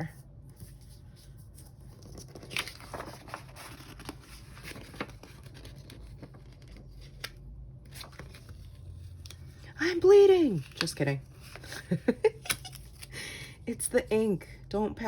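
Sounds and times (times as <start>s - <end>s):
paper rustling: 0.6s - 9.6s.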